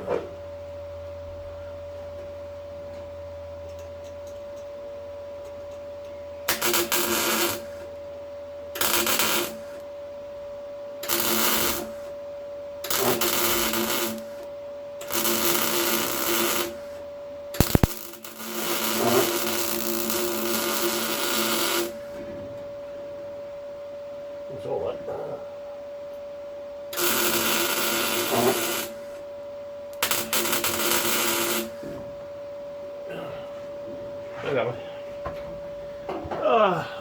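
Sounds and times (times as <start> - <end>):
steady welder hum: 2.6 - 36.2
welding arc crackling: 6.5 - 7.8, 8.8 - 9.8, 11.0 - 12.0, 12.9 - 16.9, 17.6 - 22.0, 27.0 - 29.2, 30.0 - 31.8
sharp click: 17.6 - 18.0.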